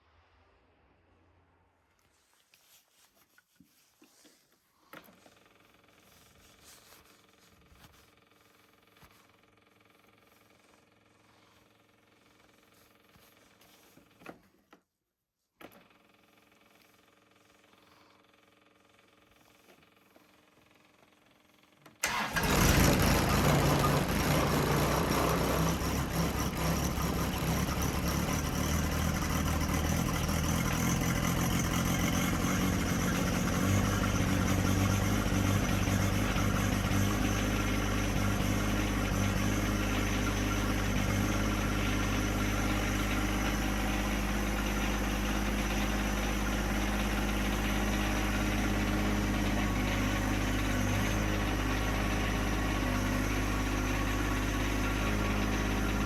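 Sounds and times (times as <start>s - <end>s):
diesel tractor engine idling: 22.0s - 56.0s.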